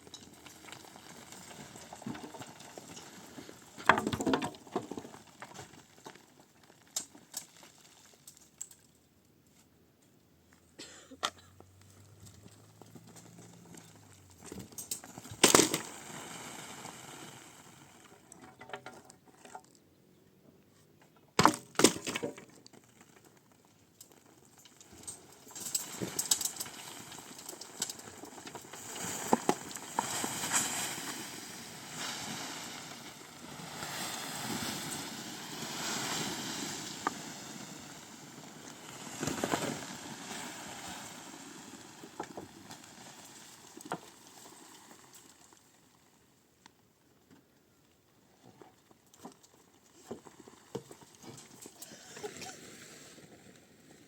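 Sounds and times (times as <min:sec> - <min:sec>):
rustling and scraping: 0:20.7 - 0:45.6.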